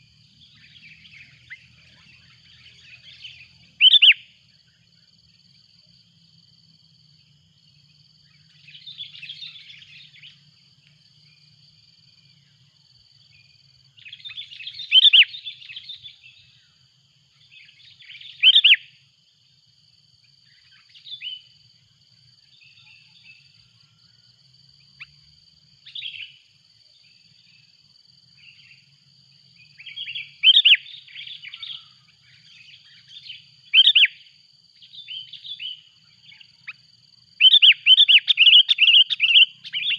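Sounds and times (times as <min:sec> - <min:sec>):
birds chirping: 0:37.4 - 0:39.9.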